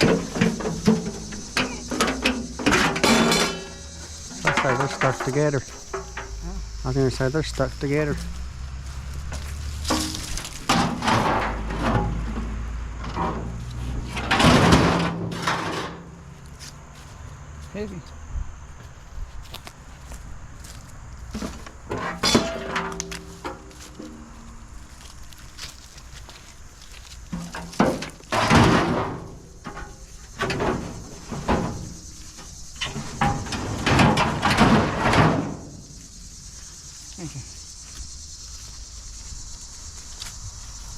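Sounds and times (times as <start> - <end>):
scrap metal scraping and clattering: 0.0 - 6.4, 9.3 - 16.2, 21.3 - 24.4, 27.2 - 35.8.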